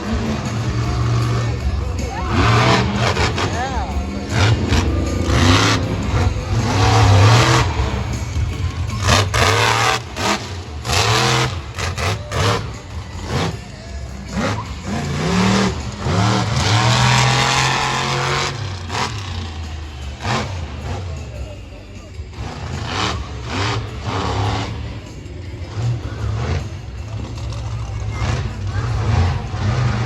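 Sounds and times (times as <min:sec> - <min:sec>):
monster truck engine revving: 0:00.0 - 0:30.0.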